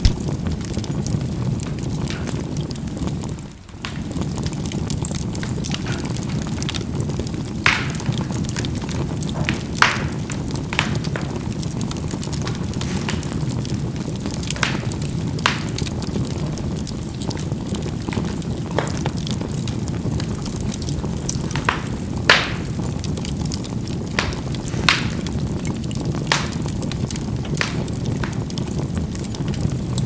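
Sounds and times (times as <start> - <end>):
charcoal fire rumbling: 0.0 - 30.0
coals popping: 0.0 - 30.0.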